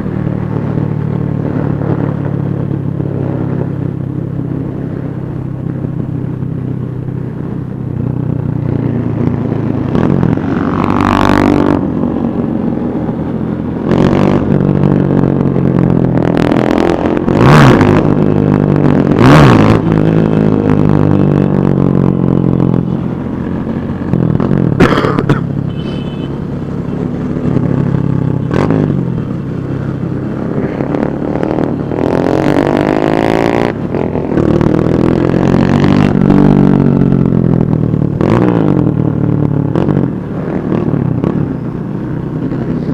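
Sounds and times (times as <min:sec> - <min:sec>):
motorcycles revving and passing: 0:00.0 - 0:42.9.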